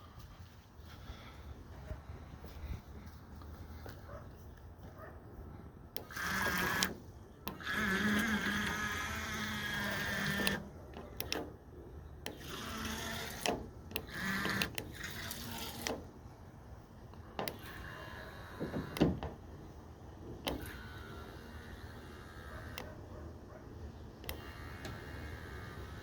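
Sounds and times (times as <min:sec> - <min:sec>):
electric motor whining: 0:06.0 - 0:11.5, 0:12.2 - 0:16.1, 0:17.4 - 0:19.4, 0:20.4 - 0:23.1, 0:24.1 - 0:26.0.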